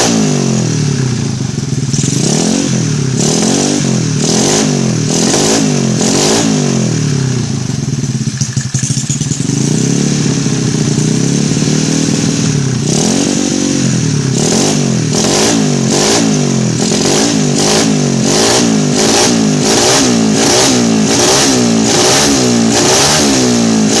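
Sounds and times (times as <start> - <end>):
scooter engine revving: 0.0 - 24.0.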